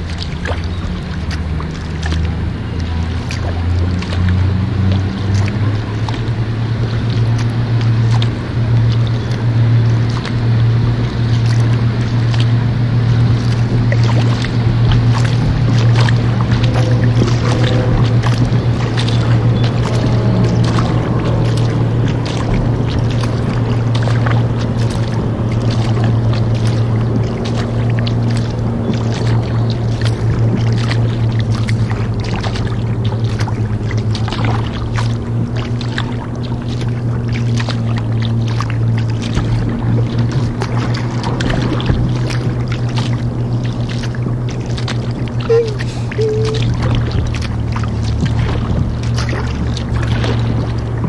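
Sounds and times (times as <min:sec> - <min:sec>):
boat engine droning: 0:00.0 - 0:51.0
water splashing: 0:00.0 - 0:51.0.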